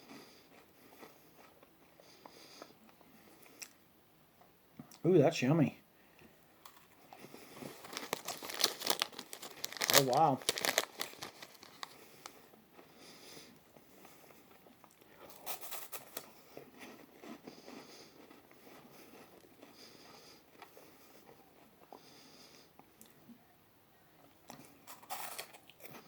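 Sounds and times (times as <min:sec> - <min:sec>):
chewing crunchy snack: 0:06.7 - 0:13.1, 0:13.7 - 0:23.2, 0:24.5 - 0:26.0.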